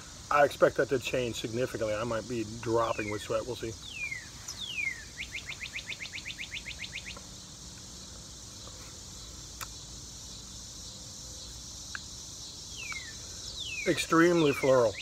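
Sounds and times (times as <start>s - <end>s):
high insect chorus: 0.0s - 15.0s
bird singing whistled notes: 2.8s - 7.2s, 12.4s - 15.0s.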